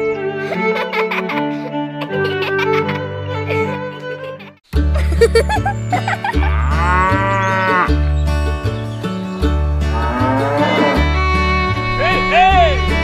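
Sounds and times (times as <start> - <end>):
upbeat background music: 0.0 - 13.0
cow mooing: 6.5 - 7.9, 9.9 - 12.2.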